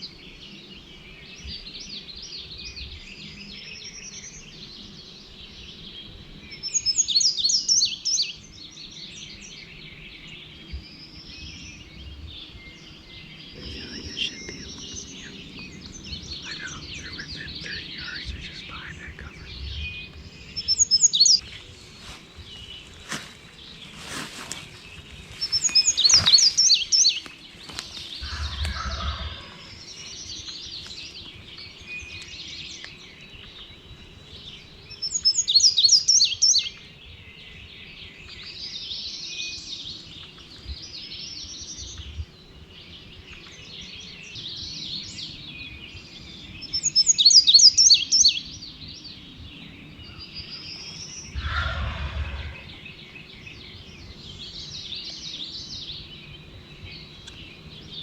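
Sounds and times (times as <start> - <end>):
soft bird calls: 9.3 - 36.9, 40.0 - 58.0
high-pitched bird song: 13.5 - 21.4, 46.6 - 48.5
low short bird calls: 51.2 - 53.0.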